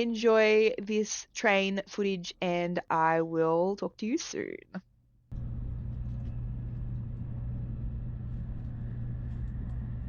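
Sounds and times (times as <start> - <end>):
train rumble and hum inside carriage: 5.4 - 10.0.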